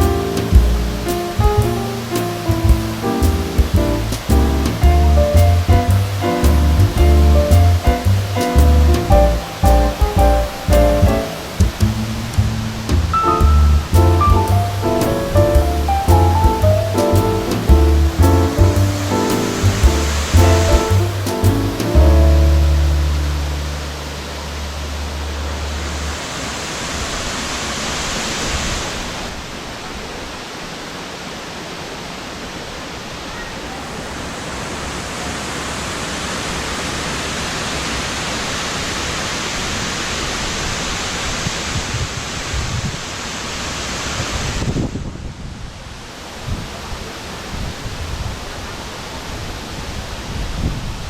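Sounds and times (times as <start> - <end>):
wind gusting on microphone: 0.0 - 24.2, 39.6 - 51.0
waterfall roaring: 0.0 - 44.8.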